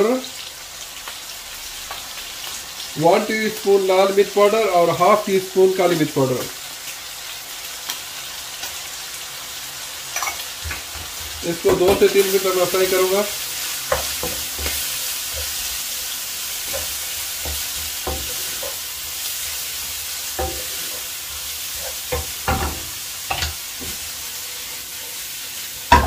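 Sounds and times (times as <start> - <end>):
chicken sizzling in oil: 0.0 - 26.0
wooden spatula scraping pan: 16.5 - 24.1
spatula knocking against pan: 16.7 - 18.8, 20.4 - 20.8, 22.1 - 24.0.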